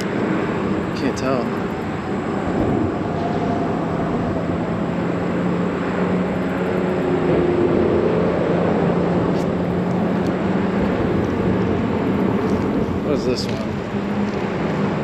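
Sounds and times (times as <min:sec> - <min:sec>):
highway traffic noise: 0:00.0 - 0:15.0.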